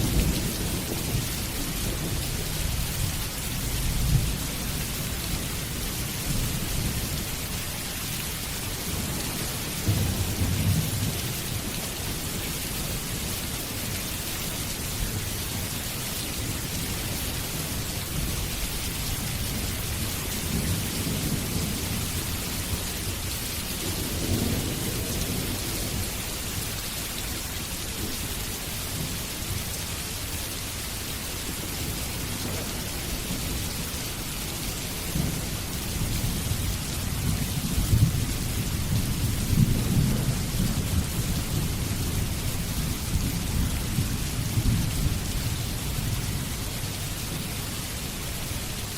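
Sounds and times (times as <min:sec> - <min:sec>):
low rolling thunder: 0:00.0 - 0:05.1, 0:08.9 - 0:11.8, 0:23.8 - 0:26.1, 0:31.9 - 0:34.0, 0:34.9 - 0:46.4
steady rain: 0:00.0 - 0:48.9.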